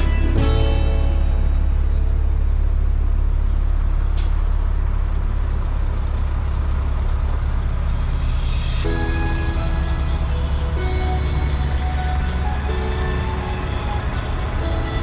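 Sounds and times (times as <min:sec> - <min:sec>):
heavy vehicle rumbling: 0:00.0 - 0:15.0
street traffic: 0:00.0 - 0:15.0.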